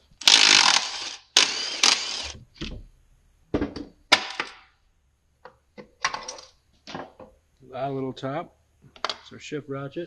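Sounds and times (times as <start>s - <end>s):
power tool running: 0.2s - 2.4s.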